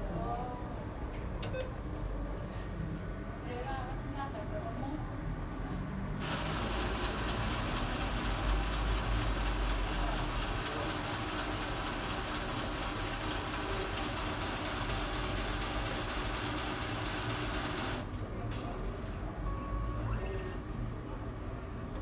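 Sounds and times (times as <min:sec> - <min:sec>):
cash dispenser mechanism running: 0:06.2 - 0:18.1.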